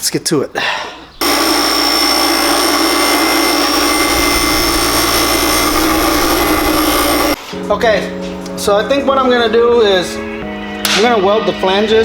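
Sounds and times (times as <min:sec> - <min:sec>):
power cutting tool whining: 0:01.2 - 0:07.4.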